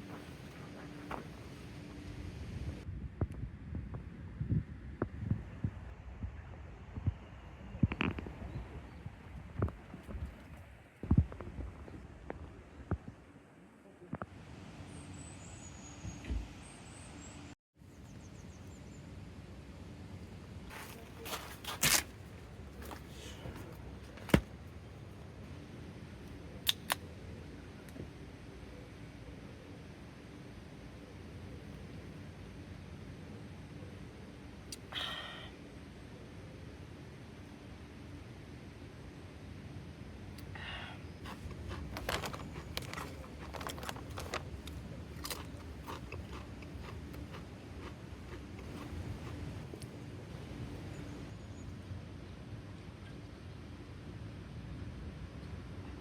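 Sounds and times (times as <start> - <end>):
objects clicking and knocking: 41.3 - 47.9.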